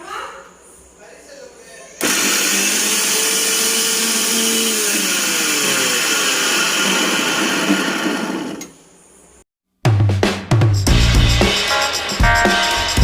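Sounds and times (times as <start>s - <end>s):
mixer grinder motor whirring: 2.0s - 8.8s.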